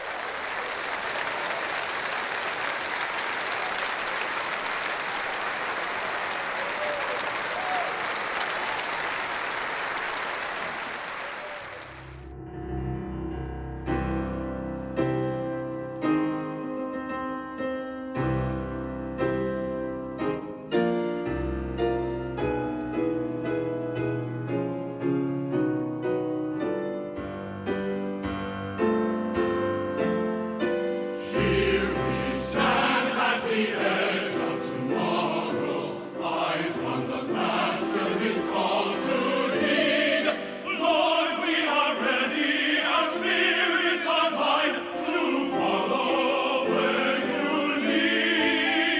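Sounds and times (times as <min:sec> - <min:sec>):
piano playing: 0:11.8 - 0:48.9
choir singing: 0:31.0 - 0:48.9.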